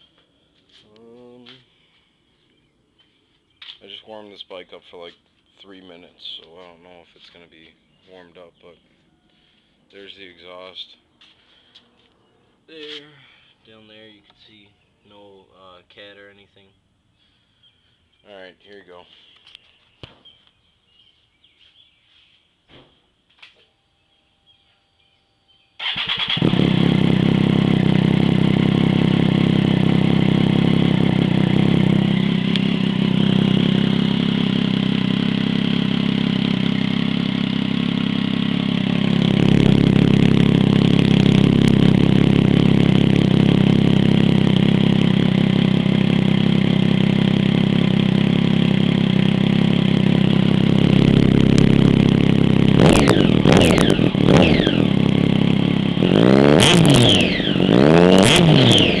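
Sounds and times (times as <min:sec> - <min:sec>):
motorcycle engine idling: 0:25.8 - 0:59.0
motorcycle engine revving: 0:25.8 - 0:59.0.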